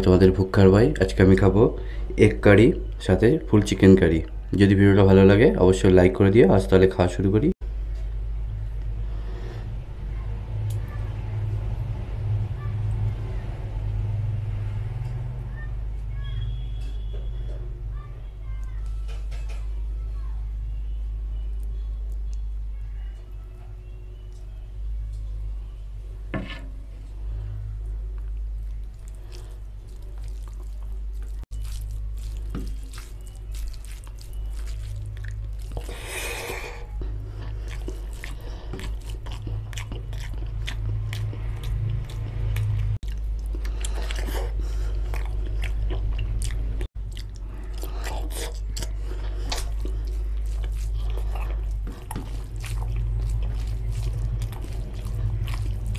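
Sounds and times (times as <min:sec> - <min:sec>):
steady low hum: 0:07.6 - 0:19.0, 0:19.6 - 0:55.9
wet chewing and lip smacks: 0:28.1 - 0:55.9
hand squishing rice in gravy: 0:28.4 - 0:41.4, 0:47.4 - 0:55.9.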